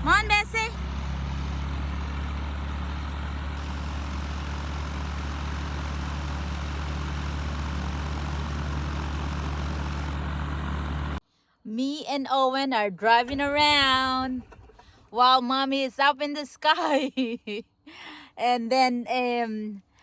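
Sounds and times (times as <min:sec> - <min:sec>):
propeller airplane engine droning: 0:00.0 - 0:11.2.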